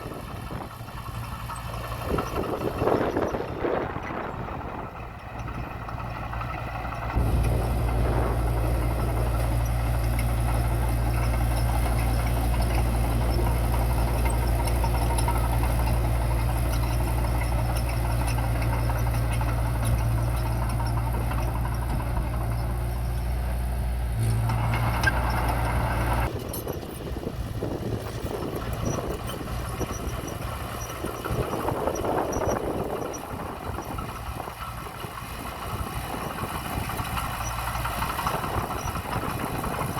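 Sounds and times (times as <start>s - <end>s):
diesel engine droning: 0.0s - 39.9s
rough engine running: 0.0s - 39.9s.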